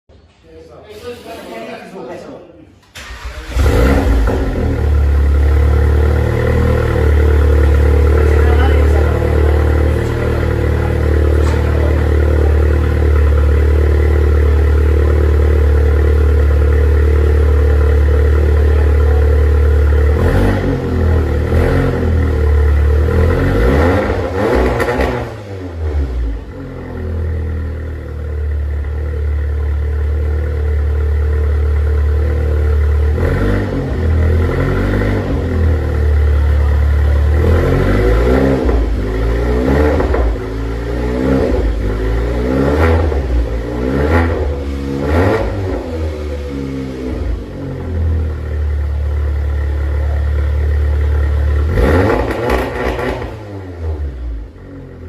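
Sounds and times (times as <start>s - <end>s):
car engine idling and revving: 2.8s - 55.0s.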